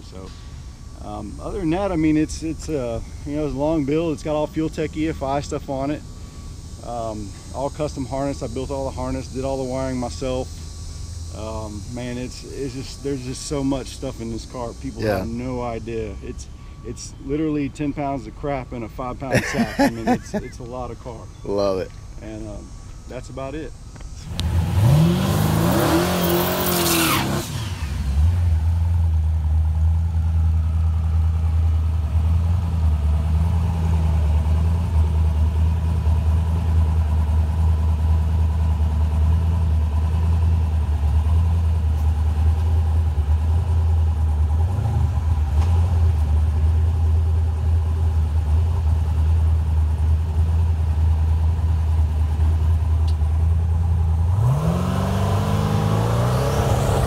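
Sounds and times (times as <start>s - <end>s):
turbo hiss: 4.5s - 16.8s
car engine revving: 24.2s - 36.8s, 42.5s - 57.0s.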